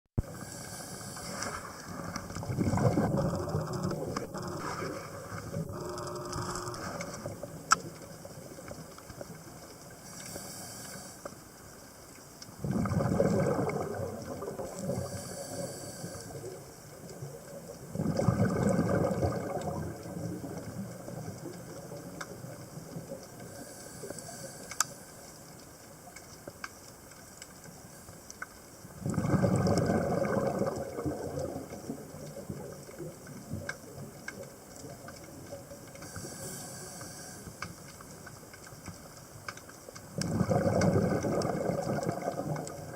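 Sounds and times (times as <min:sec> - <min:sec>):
regulator hissing inhalations: 0:00.3 - 0:01.7, 0:10.1 - 0:11.3, 0:15.0 - 0:16.5, 0:36.0 - 0:37.6
bubbling exhalations underwater: 0:02.3 - 0:05.9, 0:12.6 - 0:15.1, 0:17.8 - 0:21.3, 0:29.0 - 0:32.8, 0:40.2 - 0:42.9.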